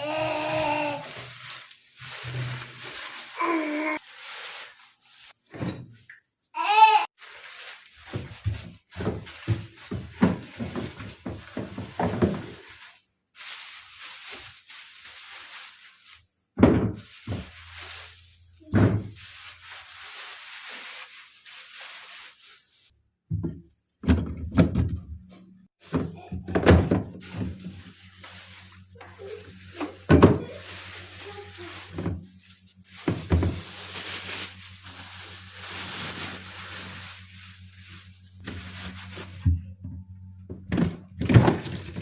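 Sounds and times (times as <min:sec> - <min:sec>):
household thuds and knocks: 0:08.1 - 0:12.6, 0:16.6 - 0:17.6, 0:18.7 - 0:19.2, 0:23.2 - 0:27.7, 0:29.8 - 0:30.5.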